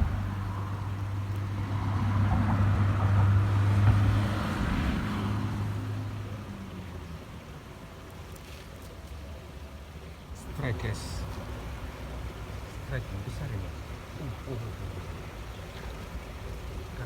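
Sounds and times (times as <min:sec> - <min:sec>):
passing vehicle engine hum: 0:00.0 - 0:08.1.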